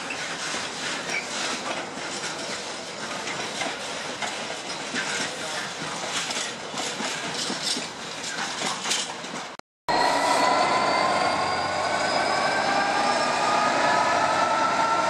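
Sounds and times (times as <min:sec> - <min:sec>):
wheels clicking over rail joints: 0:01.0 - 0:09.6.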